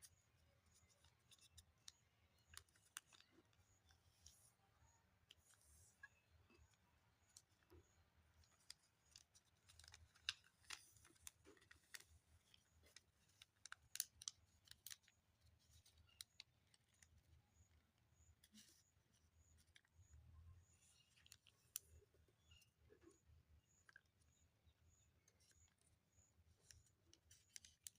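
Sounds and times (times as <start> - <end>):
paper crackling in hands: 8.4 - 17.2.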